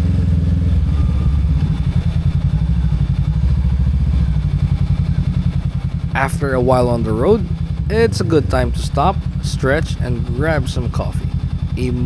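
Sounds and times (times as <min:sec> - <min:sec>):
motorcycle engine throbbing: 0:00.0 - 0:12.0.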